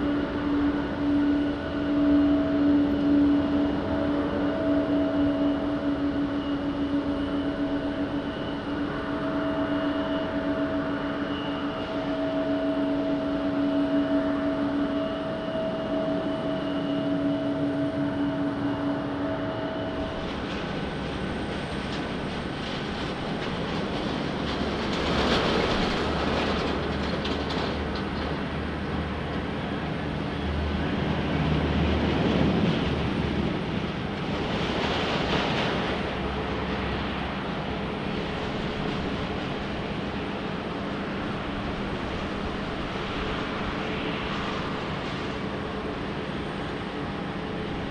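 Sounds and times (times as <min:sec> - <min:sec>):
jet engines humming: 0:00.0 - 0:47.9
aircraft passing rush: 0:18.0 - 0:47.9.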